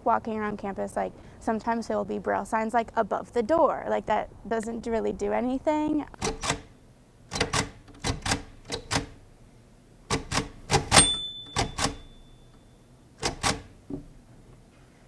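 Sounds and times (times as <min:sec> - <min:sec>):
braille writer key strokes: 0:06.2 - 0:06.7, 0:07.3 - 0:09.2, 0:10.1 - 0:12.2, 0:13.2 - 0:13.8
brief high ring: 0:11.0 - 0:12.8.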